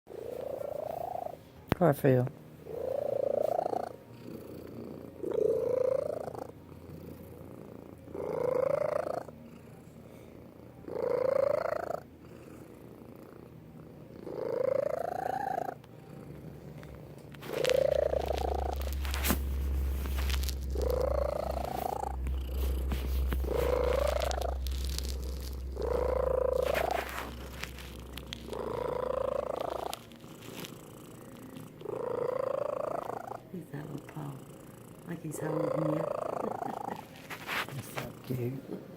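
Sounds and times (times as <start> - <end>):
cat purring: 0.1 - 38.9
steady low hum: 15.6 - 38.9.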